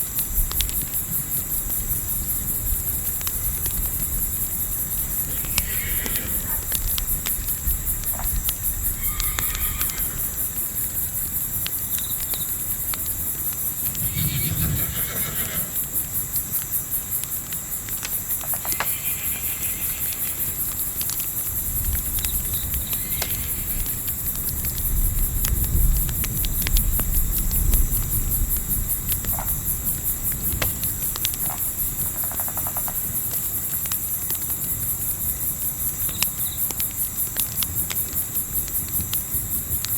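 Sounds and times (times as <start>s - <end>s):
campfire crackling: 0.0s - 39.9s
crickets chirping: 0.0s - 39.9s
low wind rumble: 0.3s - 11.6s, 12.6s - 16.6s
distant animal calls: 5.1s - 7.0s, 8.8s - 10.6s, 13.9s - 16.0s, 18.5s - 20.8s, 22.7s - 24.1s.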